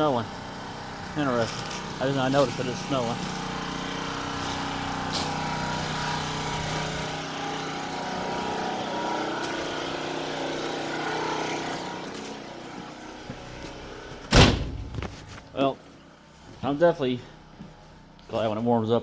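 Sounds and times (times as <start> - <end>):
generator engine running: 0.0 - 19.0
loud thump: 14.3 - 15.4.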